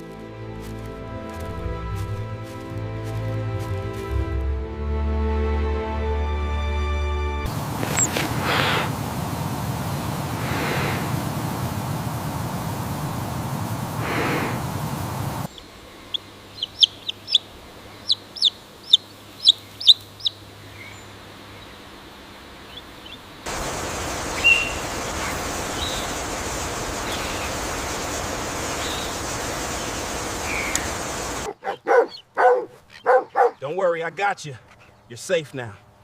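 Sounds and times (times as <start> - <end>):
steady hiss: 7.5 - 31.5
bird chirping high peeps: 15.5 - 21.8, 24.3 - 24.9, 28.8 - 33.6.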